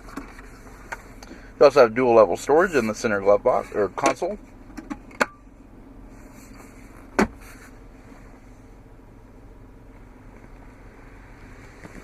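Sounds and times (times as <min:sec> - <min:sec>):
low hum in vehicle cabin: 0:00.0 - 0:12.0.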